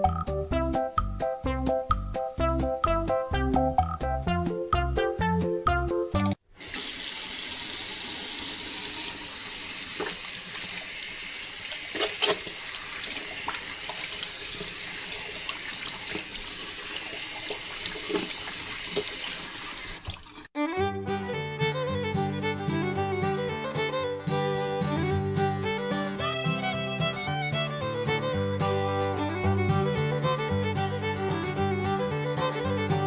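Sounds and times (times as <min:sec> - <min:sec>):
water rushing: 0:06.5 - 0:20.5
water splashes: 0:06.5 - 0:20.5.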